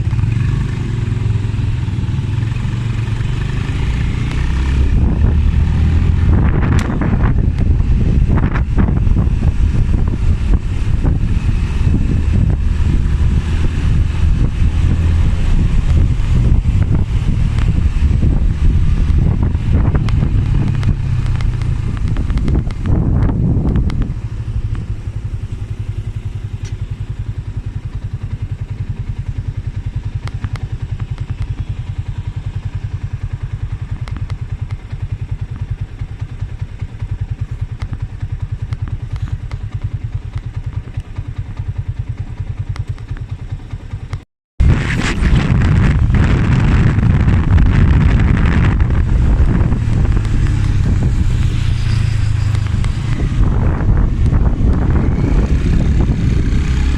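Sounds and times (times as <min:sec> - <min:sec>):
motorcycle engine: 0:00.0 - 0:56.9
wind noise: 0:03.0 - 0:26.6, 0:44.6 - 0:56.9.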